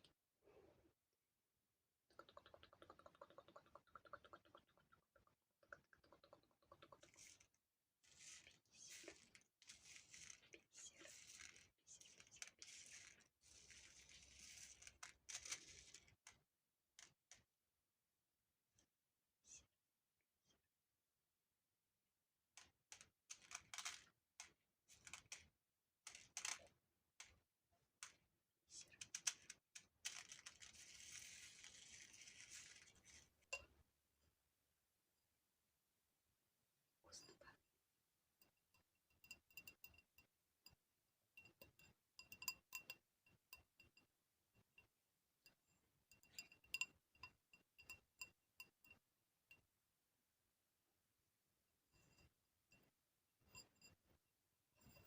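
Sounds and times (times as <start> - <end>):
soft rustling and scratching: 7.2 - 16.4, 29.0 - 33.4
scratchy crackly rustle: 30.0 - 33.3.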